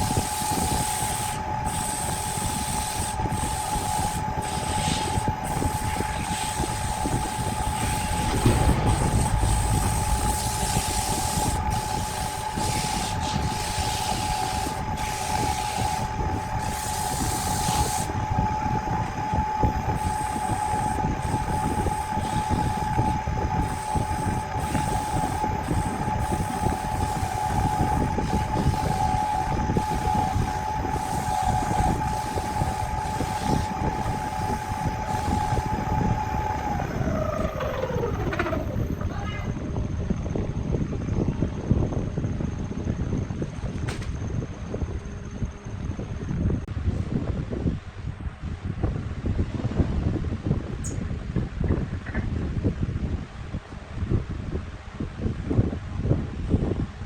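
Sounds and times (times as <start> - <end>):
power tool motor whine: 0.0 - 39.1.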